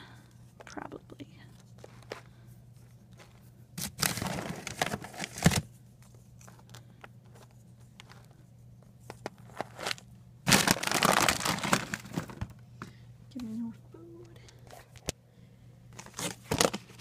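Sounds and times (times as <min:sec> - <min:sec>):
plastic bag crinkling: 0:03.2 - 0:05.7, 0:09.2 - 0:12.5.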